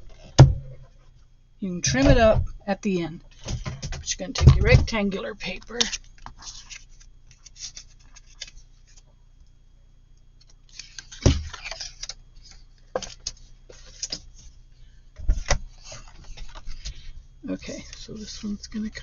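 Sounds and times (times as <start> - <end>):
heavy thump: 0.3 - 0.8, 3.5 - 5.0
paper rustling: 5.5 - 9.0, 10.7 - 14.6.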